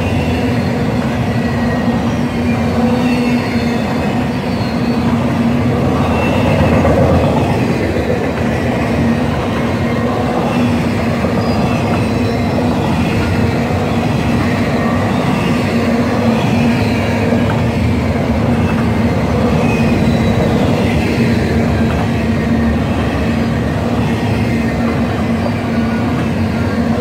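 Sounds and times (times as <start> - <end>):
faint high wheel squeals: 0.0 - 7.4, 9.9 - 17.4, 18.5 - 21.3
steel wheels rumbling on rail: 0.0 - 27.0.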